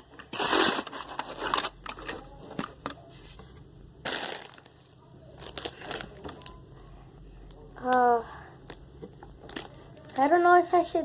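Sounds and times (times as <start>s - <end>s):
snack bag crinkling: 0.3s - 3.0s, 4.0s - 6.6s, 8.6s - 10.3s.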